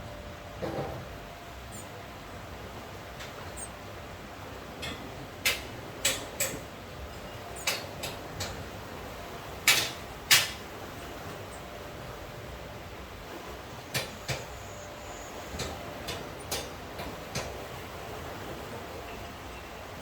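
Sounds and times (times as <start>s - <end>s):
rain hiss: 0.0s - 20.0s
sharp taps and knocks: 13.9s - 14.5s.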